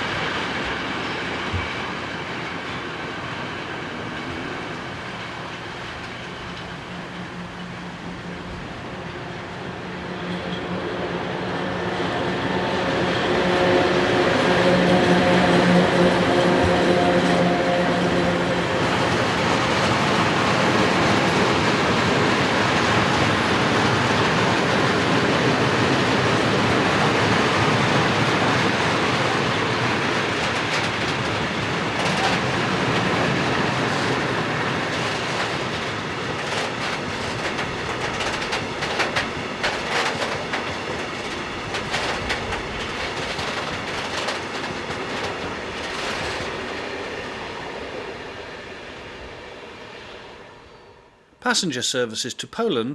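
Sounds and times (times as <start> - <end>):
train rumbling past: 0.0 - 51.9
wheels clicking over rail joints: 29.6 - 46.8.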